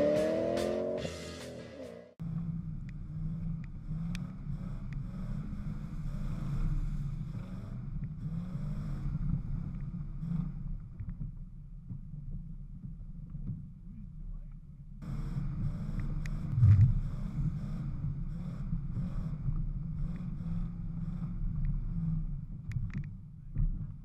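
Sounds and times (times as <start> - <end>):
off-road vehicle engine under load: 0.0 - 24.0
wind on microphone: 16.5 - 17.2.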